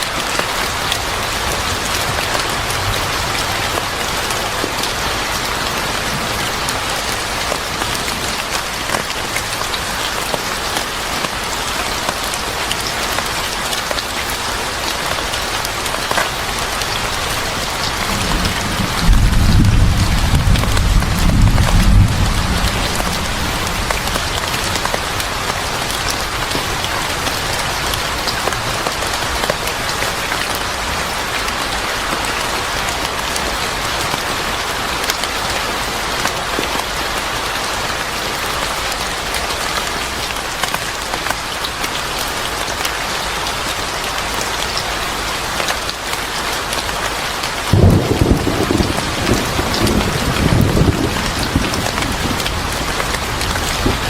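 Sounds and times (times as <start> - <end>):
heavy rain falling: 0.0 - 54.0
thunder rumbling low: 18.0 - 25.2, 47.7 - 54.0.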